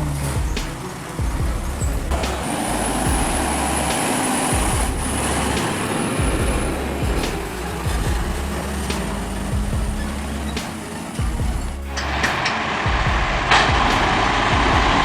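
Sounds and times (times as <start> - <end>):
truck engine and road rumble: 0.0 - 15.0.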